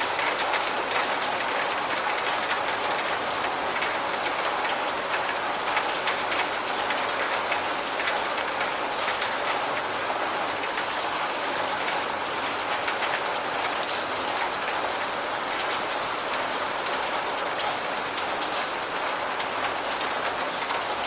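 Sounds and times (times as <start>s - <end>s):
individual raindrop ticks: 0.0s - 21.0s.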